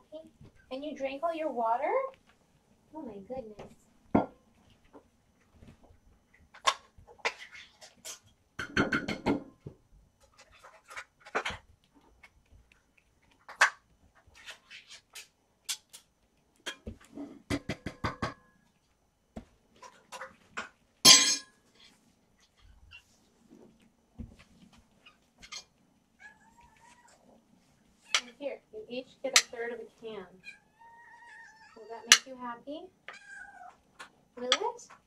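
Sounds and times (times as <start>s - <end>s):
cans and dishes clinking: 21.1s - 21.5s.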